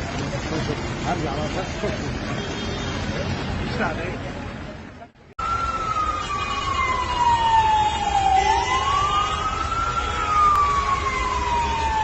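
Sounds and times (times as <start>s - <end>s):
siren wailing slowly: 5.4s - 12.0s.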